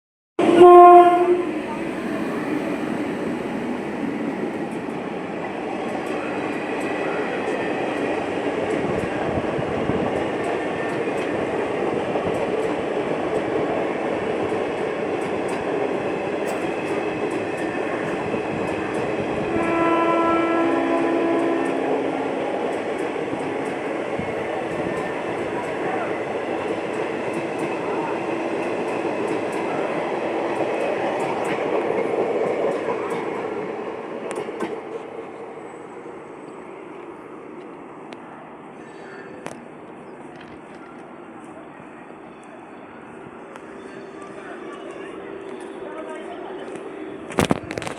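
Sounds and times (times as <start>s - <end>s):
locomotive horn blast: 0.4s - 1.8s, 19.4s - 22.4s
train wheels rumbling on track: 0.4s - 47.9s.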